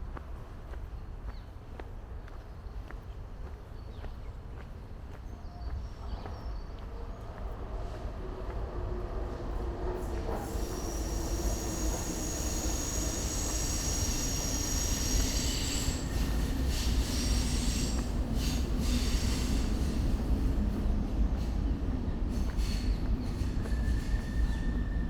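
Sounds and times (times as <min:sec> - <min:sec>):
train low rumble: 0:00.0 - 0:25.0
train wheels squealing: 0:09.8 - 0:25.0.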